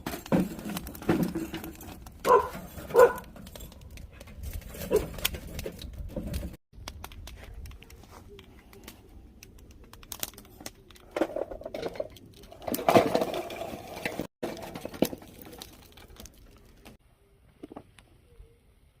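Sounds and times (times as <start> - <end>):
charcoal fire crackling: 0.0 - 17.0.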